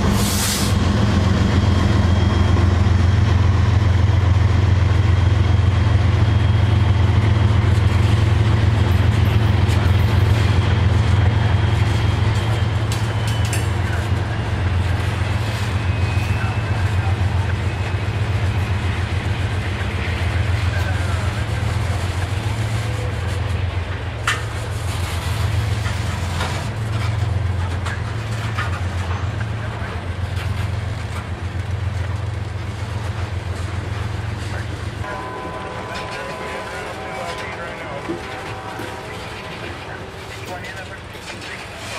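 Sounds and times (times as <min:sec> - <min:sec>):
freight train rumble: 0:00.0 - 0:41.9.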